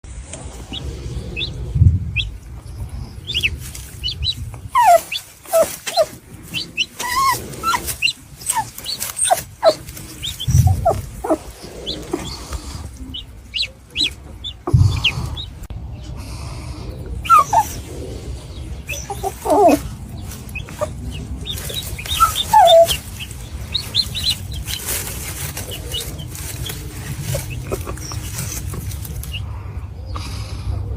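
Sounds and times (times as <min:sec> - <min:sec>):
puppy whimpering and yelping: 0:04.6 - 0:11.5, 0:17.2 - 0:17.8, 0:18.9 - 0:19.9, 0:21.6 - 0:25.0, 0:27.3 - 0:29.4
low thumps: 0:10.2 - 0:15.8.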